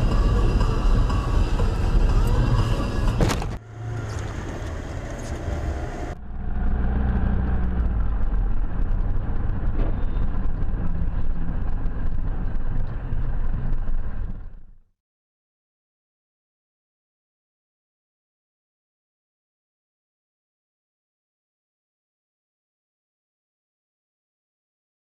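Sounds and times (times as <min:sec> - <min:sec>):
car engine and tyre noise: 0:00.0 - 0:14.9.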